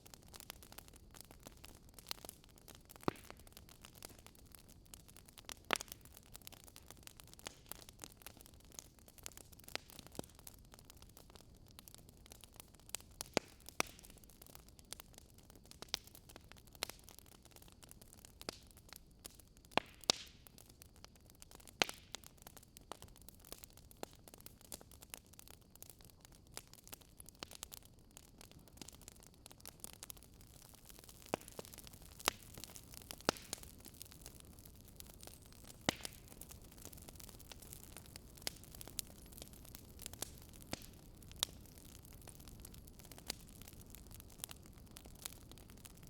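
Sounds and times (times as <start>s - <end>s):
wood fire crackling: 0.0s - 46.0s.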